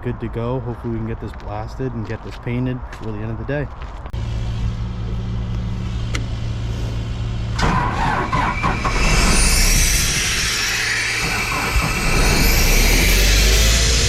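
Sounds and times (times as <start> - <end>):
engine idling: 4.2 - 14.0
abrasive blaster hissing rush: 8.1 - 14.0.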